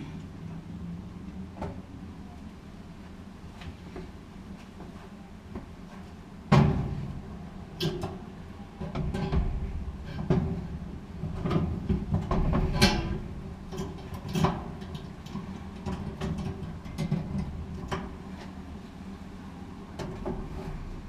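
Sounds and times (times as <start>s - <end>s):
steady low hum: 0.0s - 21.0s
metal parts knocking and scraping: 8.8s - 18.1s.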